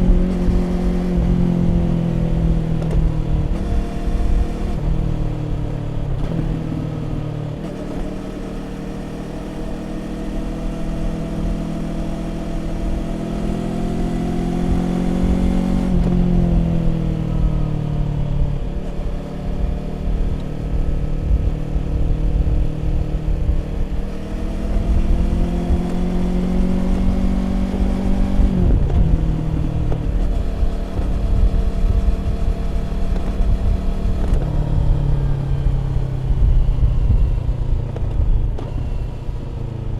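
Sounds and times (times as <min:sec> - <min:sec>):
motorcycle engine accelerating: 0:00.0 - 0:39.9
wind on microphone: 0:14.0 - 0:39.9.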